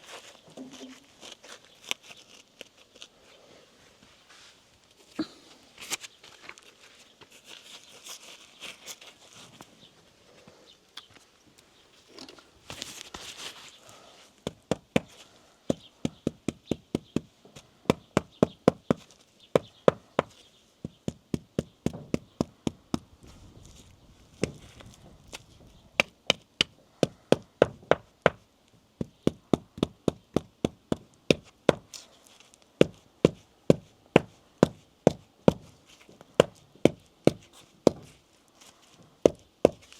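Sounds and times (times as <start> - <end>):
soft scraping: 0.0 - 10.7, 11.7 - 14.4.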